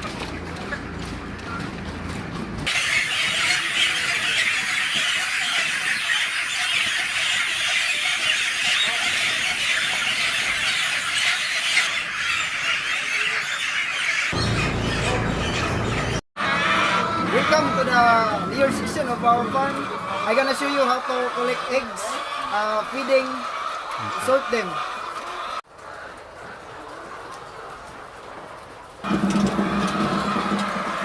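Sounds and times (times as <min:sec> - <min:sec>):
chicks peeping: 0:02.6 - 0:25.6
low machine hum: 0:14.4 - 0:19.5.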